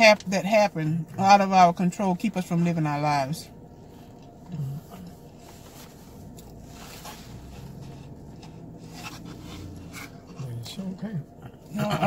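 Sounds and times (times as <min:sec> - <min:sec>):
steady low hum: 0:00.0 - 0:12.0
faint chewing: 0:03.8 - 0:10.7.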